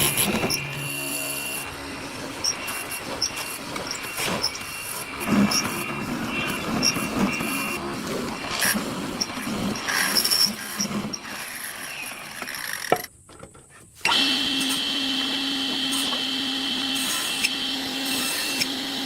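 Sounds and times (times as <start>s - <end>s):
workshop clatter: 0.0s - 11.0s
power tool motor whining: 0.0s - 12.9s, 14.0s - 19.0s.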